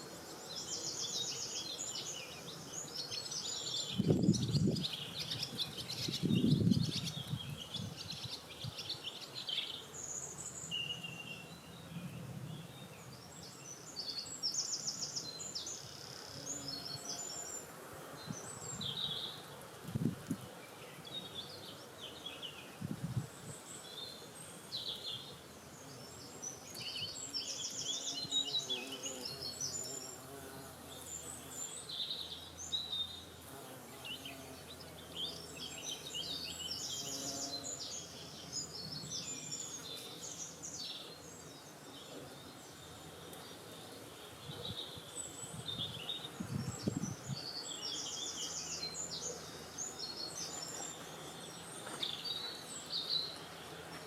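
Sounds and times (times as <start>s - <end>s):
songbirds chirping and trilling: 0.0s - 54.0s
wind rumble on microphone: 3.9s - 8.8s, 11.9s - 12.9s, 19.8s - 20.5s, 22.7s - 23.6s, 44.4s - 47.6s.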